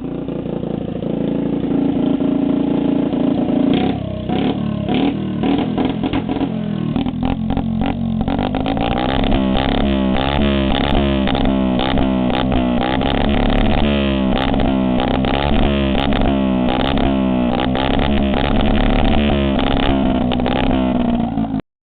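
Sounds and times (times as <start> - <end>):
electronic buzzing drone: 4.3 - 21.5.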